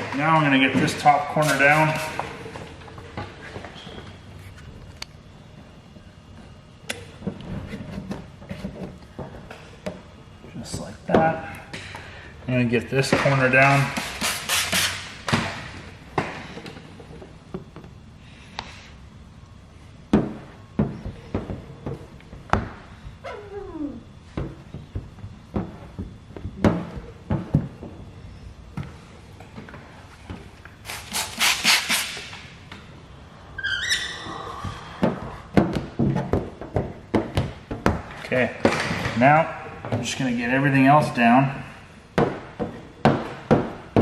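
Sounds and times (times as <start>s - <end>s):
spray bottle squirting: 13.9s - 15.0s, 30.8s - 32.4s.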